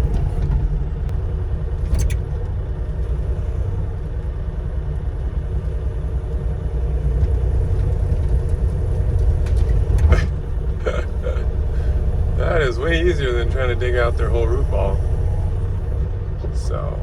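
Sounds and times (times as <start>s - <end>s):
diesel engine low rumble: 0.0s - 17.0s
click: 1.8s - 3.2s.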